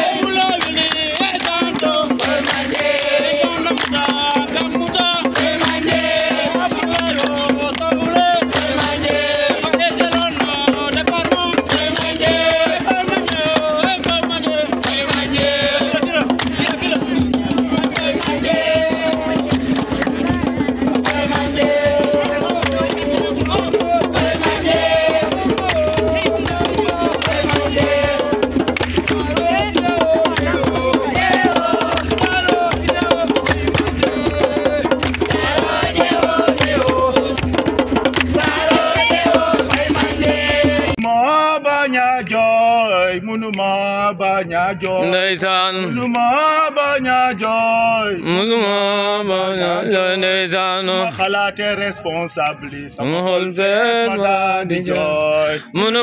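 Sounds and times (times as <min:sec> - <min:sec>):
hand drums beating fast: 0:00.0 - 0:41.2
voices singing: 0:00.0 - 0:56.0.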